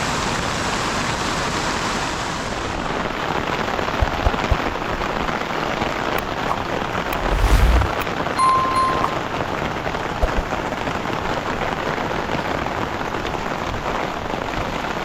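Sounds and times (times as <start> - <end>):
low thumps: 7.2 - 8.0.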